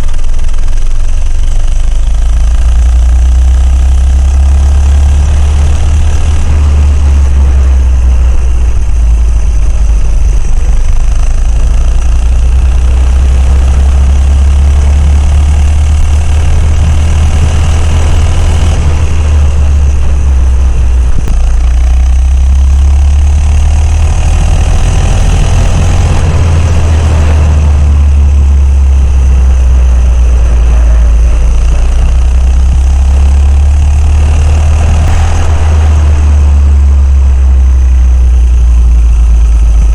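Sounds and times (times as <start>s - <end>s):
low rumble: 0.0s - 39.9s
minibike engine running: 0.0s - 39.9s.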